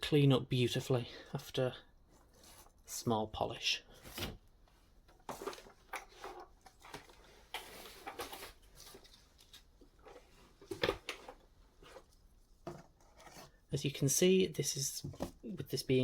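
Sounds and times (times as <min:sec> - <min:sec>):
rubs and rustles: 0:02.1 - 0:03.0, 0:05.2 - 0:13.7.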